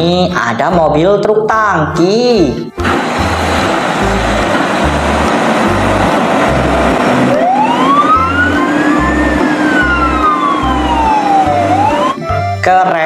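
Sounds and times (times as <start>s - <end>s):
background music with bass beat: 2.5s - 12.8s
emergency siren wailing: 2.8s - 12.7s.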